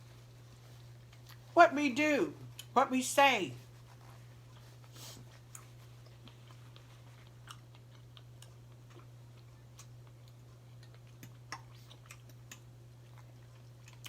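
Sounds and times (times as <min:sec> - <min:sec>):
low steady hum: 0:00.0 - 0:14.0
person chewing: 0:00.8 - 0:01.5, 0:04.1 - 0:14.0.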